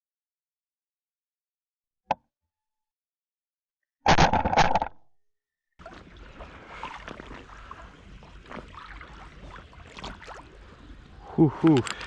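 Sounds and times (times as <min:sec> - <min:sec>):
faint water sounds: 0:05.8 - 0:12.0.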